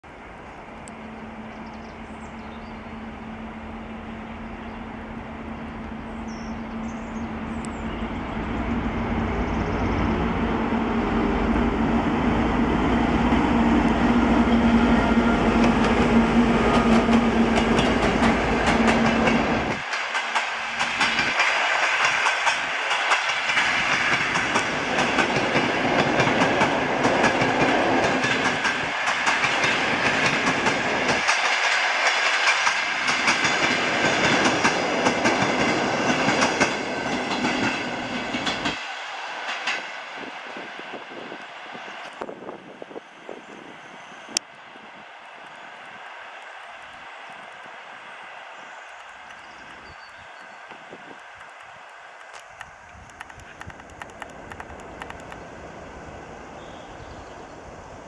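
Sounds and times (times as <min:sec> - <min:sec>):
diesel locomotive engine hum: 0:00.0 - 0:58.0
train wheels clicking over rail joints: 0:13.2 - 0:40.0, 0:50.7 - 0:55.5.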